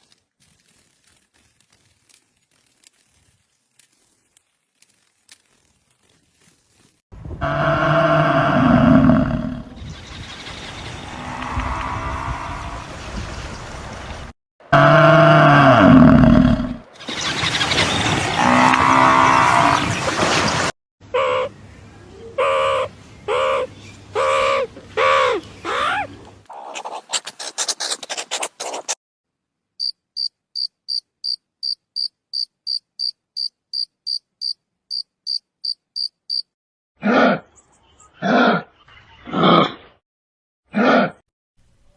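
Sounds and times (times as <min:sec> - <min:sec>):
long pitched animal calls: 0:10.8 - 0:12.8, 0:21.1 - 0:21.5, 0:22.4 - 0:26.1
fast rattle call: 0:17.0 - 0:19.1
cricket chirping: 0:29.8 - 0:36.5.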